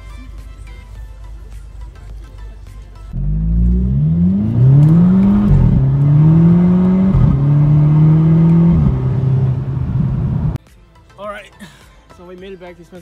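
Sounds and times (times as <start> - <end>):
car engine accelerating through gears: 3.2 - 10.6.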